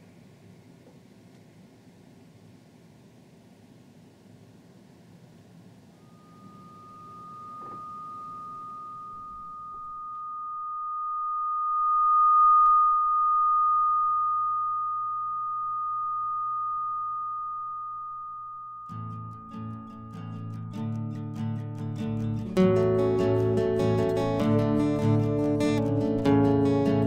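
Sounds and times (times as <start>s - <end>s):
faint room hiss: 0.0s - 27.0s
high-pitched electronic tone: 6.0s - 20.3s.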